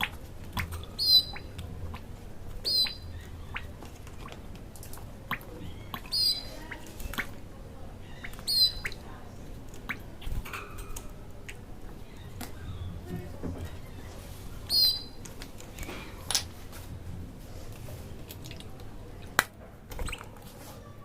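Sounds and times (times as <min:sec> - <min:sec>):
bird chirping: 0:00.0 - 0:02.0, 0:02.6 - 0:03.8, 0:05.3 - 0:07.3, 0:08.0 - 0:09.0, 0:12.0 - 0:15.2.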